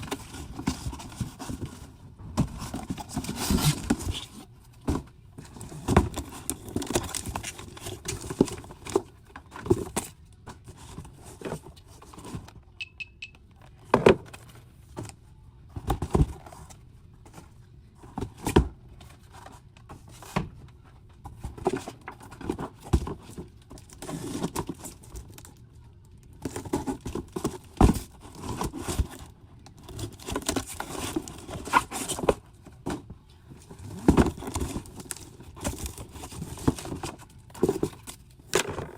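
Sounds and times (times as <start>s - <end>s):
packaging clatter and rustling: 0.0s - 12.6s, 21.2s - 38.9s
short electronic beep: 12.8s - 13.4s.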